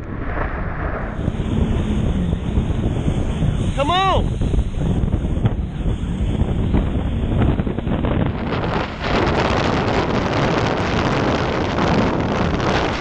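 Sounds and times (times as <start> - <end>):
wind buffeting microphone: 0.0 - 13.0
jet ski engine rumble: 0.8 - 13.0.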